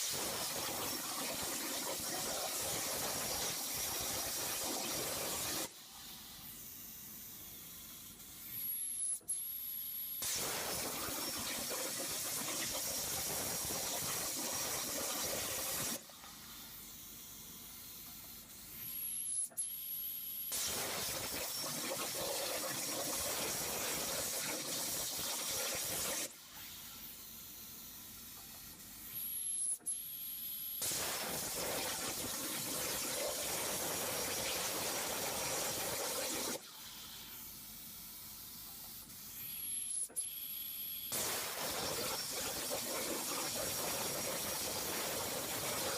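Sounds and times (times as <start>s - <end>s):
plasma cutting torch hiss: 0.0s - 9.2s, 10.2s - 17.0s, 20.5s - 29.7s, 30.8s - 40.4s, 41.1s - 45.9s.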